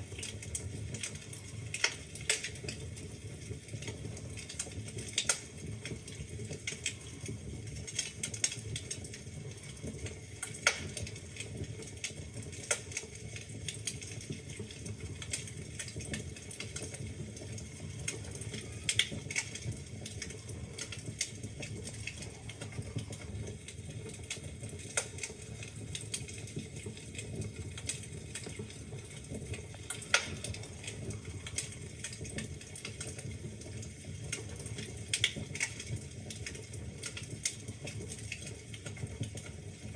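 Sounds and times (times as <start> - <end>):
low rumble of flames: 0.0 - 39.9
wood fire crackling: 0.0 - 39.9
logs popping and snapping: 10.6 - 11.0, 29.5 - 33.0.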